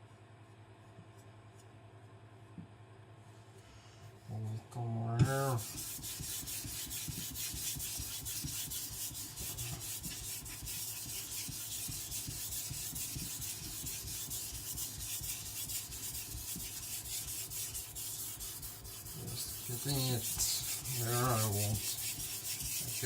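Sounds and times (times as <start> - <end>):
knife scraping on whetstone: 5.5 - 23.0.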